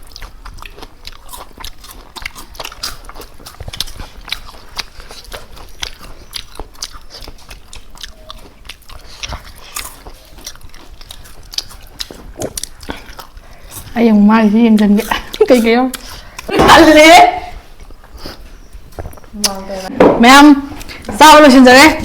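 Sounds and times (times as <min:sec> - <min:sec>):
person chewing food: 0:00.0 - 0:16.5, 0:17.6 - 0:19.6.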